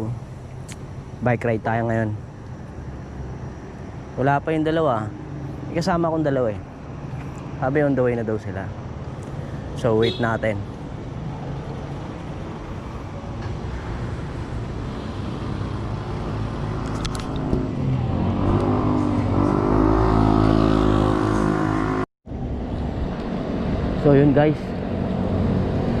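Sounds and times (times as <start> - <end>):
road traffic: 0.0 - 26.0
vehicle engine approaching: 10.8 - 26.0.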